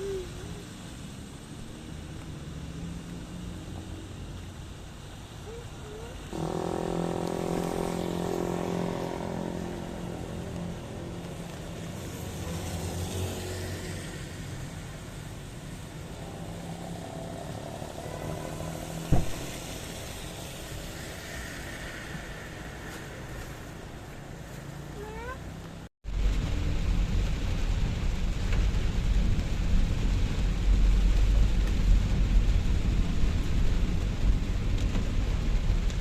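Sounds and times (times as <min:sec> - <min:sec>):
vehicle tyre hiss: 0:03.1 - 0:25.1
vehicle engine passing: 0:06.3 - 0:15.2
sharp knock: 0:19.1 - 0:19.6.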